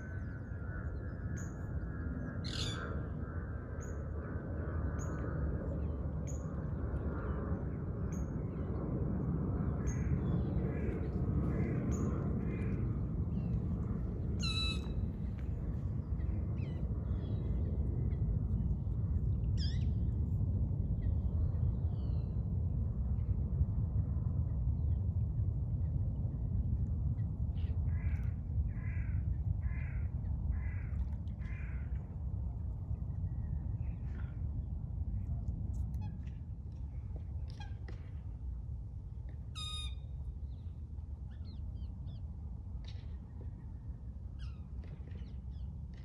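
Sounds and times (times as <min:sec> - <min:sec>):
steady low rumble: 0:00.0 - 0:46.0
wild birds calling: 0:02.4 - 0:03.0, 0:14.4 - 0:14.9.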